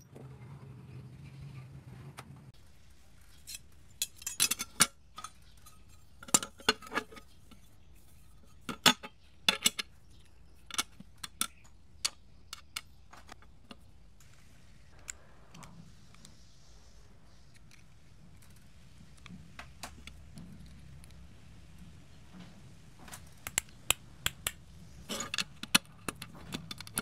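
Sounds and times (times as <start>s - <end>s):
metal tools clinking: 3.2s - 10.0s, 25.1s - 27.0s.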